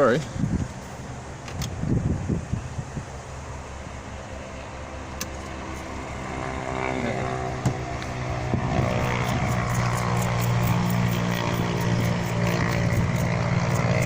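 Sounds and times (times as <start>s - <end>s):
heater blower fan running: 0.0s - 14.0s.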